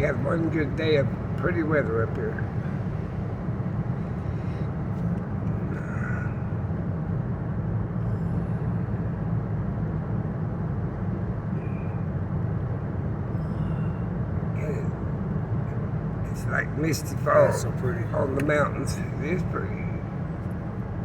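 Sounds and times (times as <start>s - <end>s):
engine and road drone: 0.0s - 21.0s.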